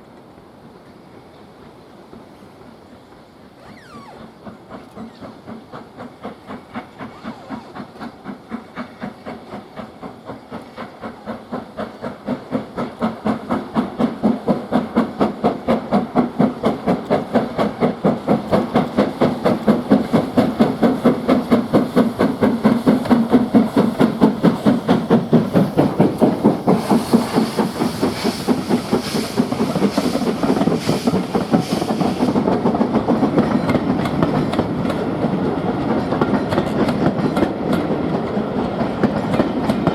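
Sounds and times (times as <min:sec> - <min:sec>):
steam hiss: 0:00.0 - 0:39.9
steam locomotive exhaust beats: 0:00.0 - 0:39.9.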